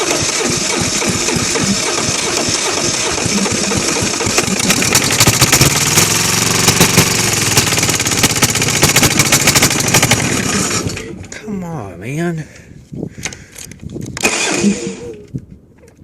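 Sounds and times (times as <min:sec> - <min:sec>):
diesel engine running roughly: 0:00.0 - 0:11.2.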